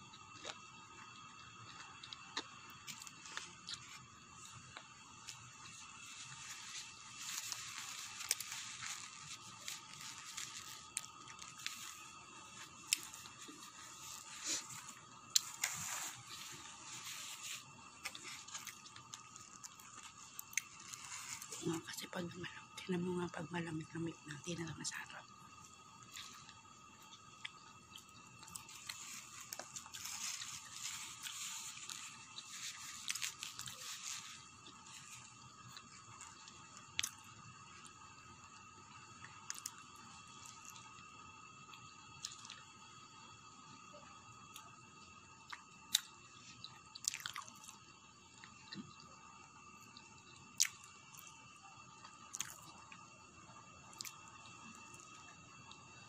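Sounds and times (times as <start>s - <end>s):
person chewing pizza: 0.1s - 22.0s, 25.3s - 38.0s, 42.2s - 42.7s, 45.4s - 47.8s, 52.0s - 53.0s.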